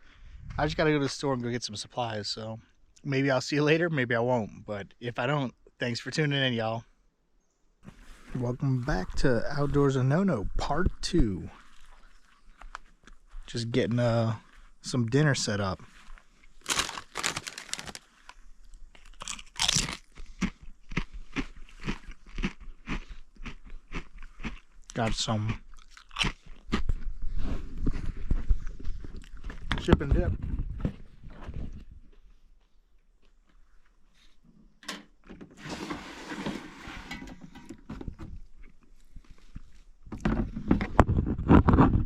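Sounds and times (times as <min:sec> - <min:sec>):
rustling: 0:15.9 - 0:18.4
chewing crunchy chips: 0:16.4 - 0:27.3, 0:27.9 - 0:29.7.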